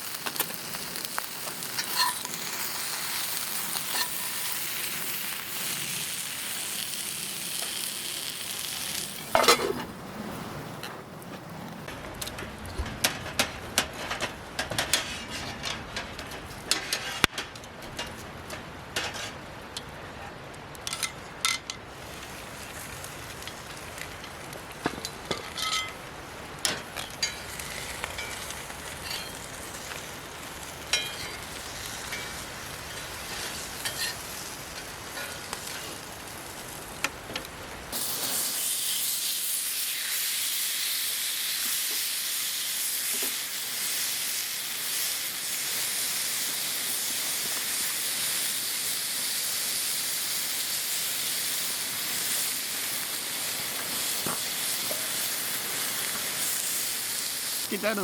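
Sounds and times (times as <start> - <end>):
pork sizzling in skillet: 0.0 - 11.2, 21.9 - 58.0
loud high hiss: 37.9 - 58.0.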